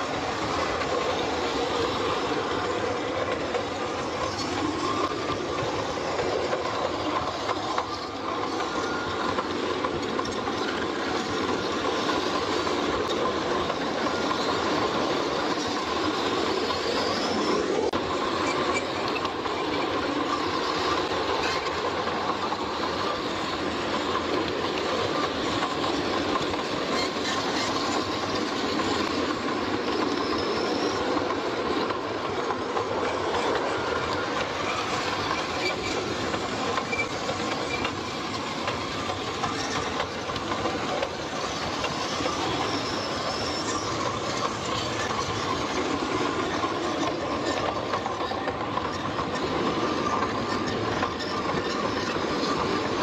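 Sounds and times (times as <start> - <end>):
train rolling on rails: 0.0 - 53.0
wheels clicking: 0.0 - 53.0.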